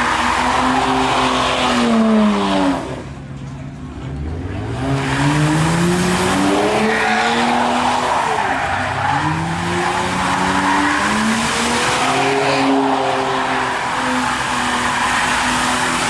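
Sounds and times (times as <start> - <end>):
tires squealing and skidding: 0.0 - 3.1, 4.1 - 16.0
car engine revving hard: 4.2 - 16.0.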